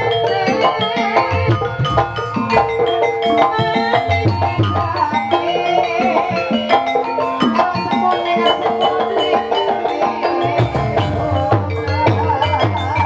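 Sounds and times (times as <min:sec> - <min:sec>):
drum beat: 0:00.0 - 0:05.2, 0:10.4 - 0:13.0
keyed percussion quick struck notes: 0:00.0 - 0:13.0
wavering melody line: 0:00.0 - 0:13.0.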